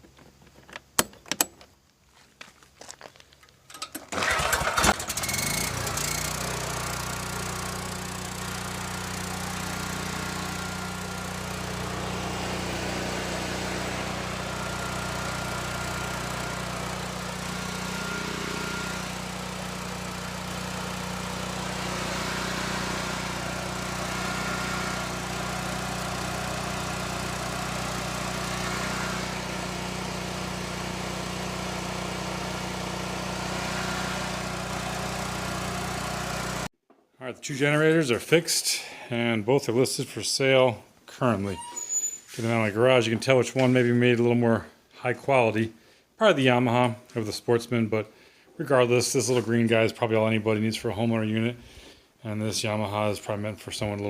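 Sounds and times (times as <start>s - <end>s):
generator engine running: 4.1s - 36.7s.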